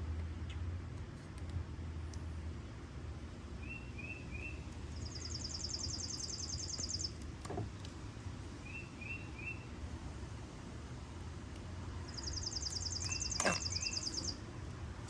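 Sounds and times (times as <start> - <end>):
songbird trilling: 3.6 - 7.2, 8.6 - 9.7, 12.0 - 14.4
short bird chirps: 12.1 - 14.4.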